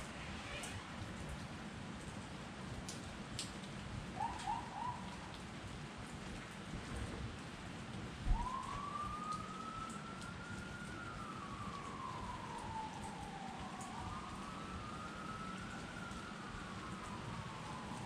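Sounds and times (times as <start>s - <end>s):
steady rain falling: 0.0s - 18.0s
water drips: 1.2s - 7.0s, 8.2s - 18.0s
siren chirps and wail: 4.2s - 5.3s, 8.2s - 18.0s.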